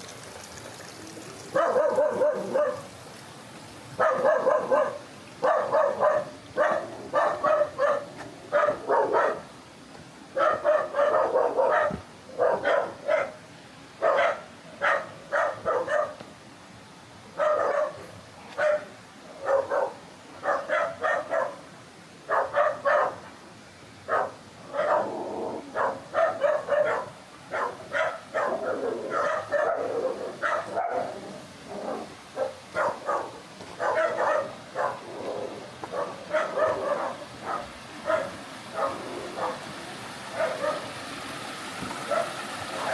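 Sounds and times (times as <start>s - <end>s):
background hiss: 0.0s - 42.9s
dog barking: 1.5s - 2.9s, 4.0s - 9.5s, 10.4s - 13.4s, 14.0s - 16.2s, 17.4s - 21.7s, 22.3s - 23.3s, 24.1s - 31.2s, 31.8s - 35.1s, 35.9s - 39.6s, 40.3s - 40.9s, 42.1s - 42.9s.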